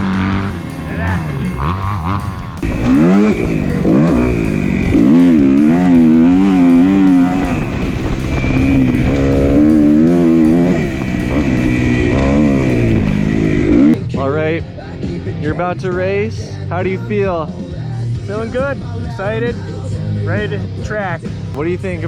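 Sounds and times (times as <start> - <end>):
dirt bike engines revving: 0.0 - 16.7.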